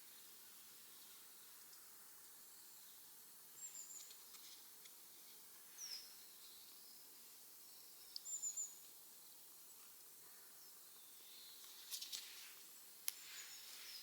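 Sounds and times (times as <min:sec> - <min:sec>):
small bird chirping: 0:02.5 - 0:04.6, 0:05.6 - 0:09.0.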